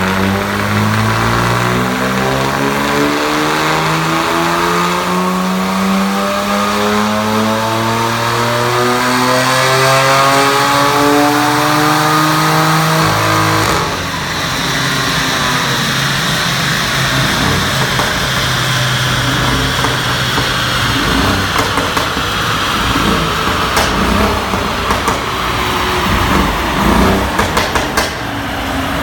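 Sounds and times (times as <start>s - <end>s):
car engine revving on dyno: 0.0s - 29.0s.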